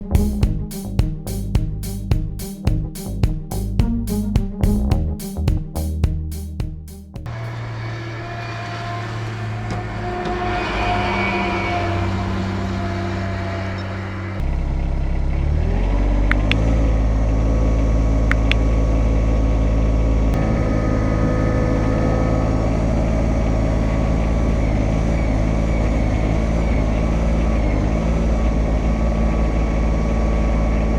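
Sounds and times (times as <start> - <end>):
tractor diesel engine running: 16.7 - 30.9.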